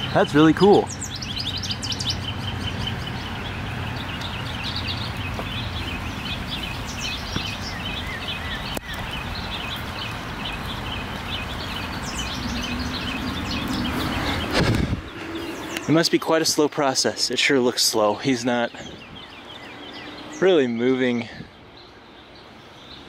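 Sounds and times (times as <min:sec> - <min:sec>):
songbirds chirping: 0:00.0 - 0:23.0
low outdoor rumble: 0:09.3 - 0:16.0.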